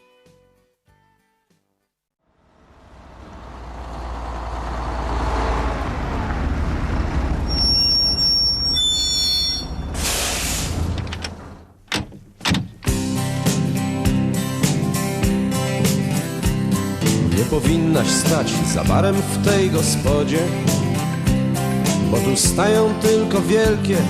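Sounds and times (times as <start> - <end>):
truck engine rumbling: 2.3 - 13.5, 14.4 - 24.0
high squealing tones: 7.4 - 10.8
air brakes hissing: 7.5 - 11.0
knocks: 11.9 - 12.9.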